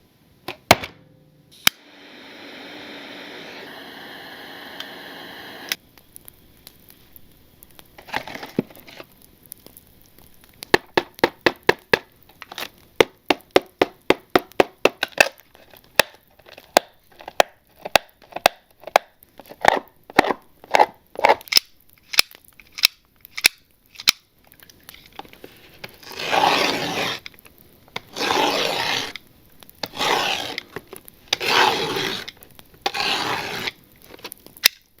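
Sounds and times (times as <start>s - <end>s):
packaging crinkling: 6.7s - 10.8s, 12.0s - 13.2s, 14.6s - 35.0s
sharp taps on packaging: 10.7s - 12.1s, 13.0s - 15.2s.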